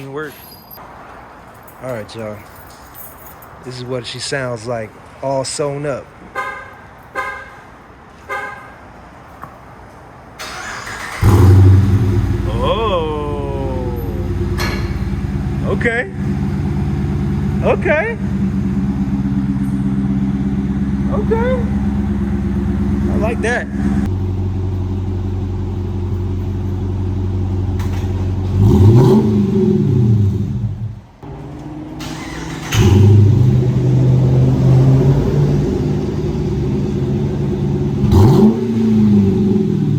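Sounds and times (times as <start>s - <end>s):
car horn chirps: 6.3s - 7.7s, 8.3s - 8.8s
car engine starting loud: 10.4s - 39.9s.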